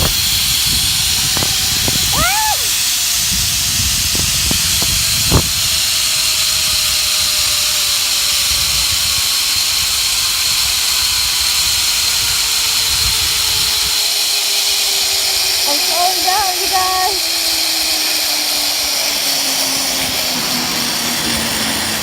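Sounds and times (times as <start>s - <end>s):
wind rumbling on microphone: 0.0s - 7.8s, 8.4s - 14.1s
zip line trolley hissing on cable: 0.0s - 22.0s.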